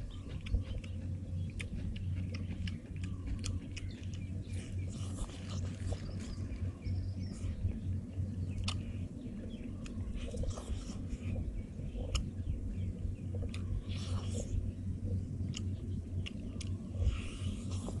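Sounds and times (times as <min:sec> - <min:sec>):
mouth clicks and crackles: 0:00.0 - 0:07.0, 0:07.6 - 0:18.0
steady low hum: 0:00.0 - 0:18.0
person biting and chewing: 0:00.2 - 0:06.4, 0:08.6 - 0:08.9.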